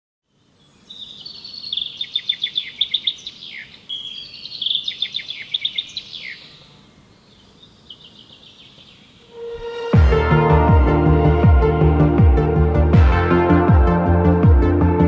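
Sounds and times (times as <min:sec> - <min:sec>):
faint background noise: 0:00.3 - 0:09.4
songbird chirping and whistling: 0:00.6 - 0:09.8.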